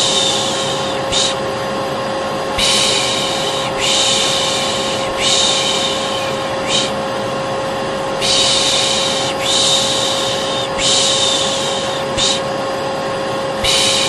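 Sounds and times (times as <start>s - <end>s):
vacuum cleaner running: 0.0s - 14.0s
shushing: 2.6s - 7.0s, 8.2s - 12.5s.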